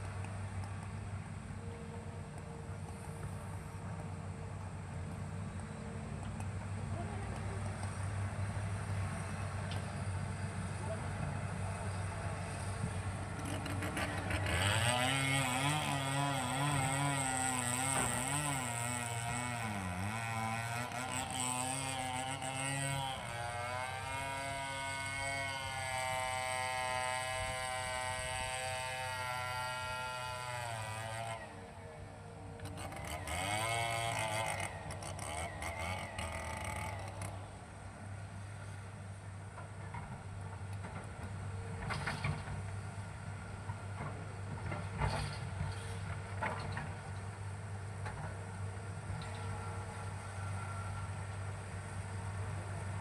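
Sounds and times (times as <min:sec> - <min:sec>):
excavator diesel engine: 0:00.0 - 0:53.0.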